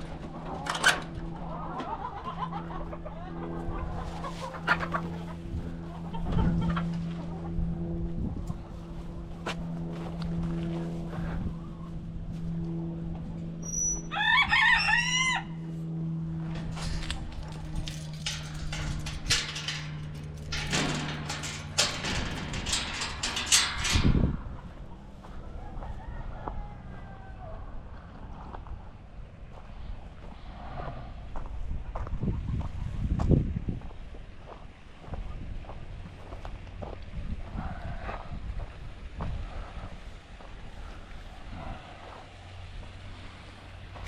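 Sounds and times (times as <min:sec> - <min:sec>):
low mechanical hum: 0:00.0 - 0:44.0
chickens clucking: 0:01.3 - 0:07.6
clattering and crunching knocks: 0:16.5 - 0:24.6.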